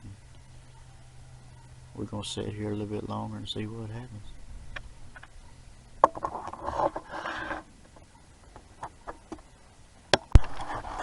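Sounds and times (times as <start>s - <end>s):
rustling and scraping: 6.0s - 9.6s, 10.3s - 11.0s.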